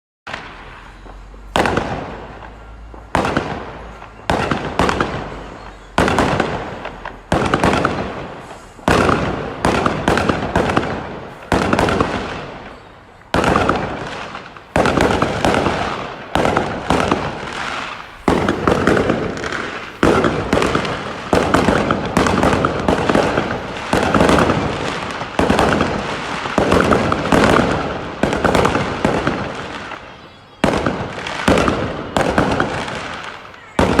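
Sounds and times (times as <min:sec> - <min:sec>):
fireworks crackling: 0:00.3 - 0:34.0
fireworks exploding: 0:00.3 - 0:34.0.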